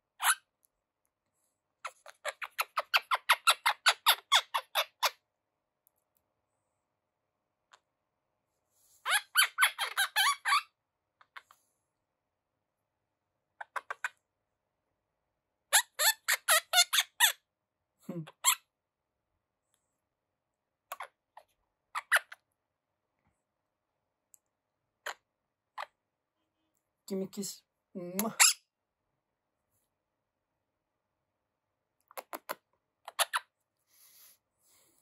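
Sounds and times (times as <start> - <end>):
parrot chattering squeaky chirps: 0.2 - 0.5, 1.8 - 5.2, 9.0 - 11.5, 13.6 - 14.2, 15.7 - 17.5, 18.3 - 18.7, 20.9 - 22.4, 28.3 - 28.6, 32.2 - 33.5.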